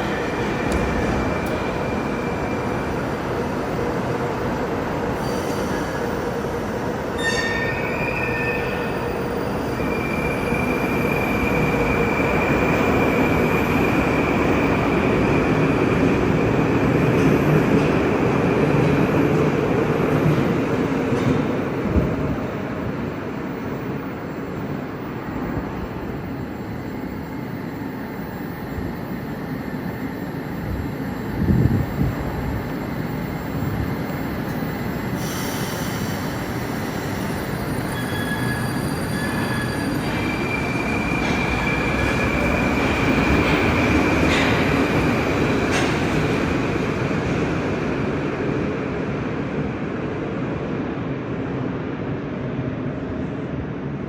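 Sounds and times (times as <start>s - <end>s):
high-pitched wheel squeal: 37.3s - 41.0s.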